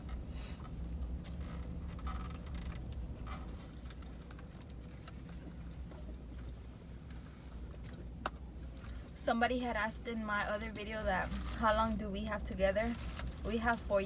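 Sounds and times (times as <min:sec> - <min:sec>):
low hum in truck cabin: 0:00.0 - 0:14.0
wrappers rustling: 0:11.0 - 0:14.0.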